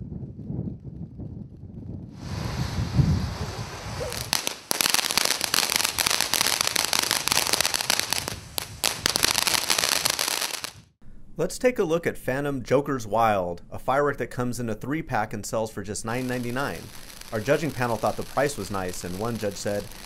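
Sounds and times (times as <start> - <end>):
firework fountain hissing and crackling: 2.2 - 10.8, 16.2 - 20.0.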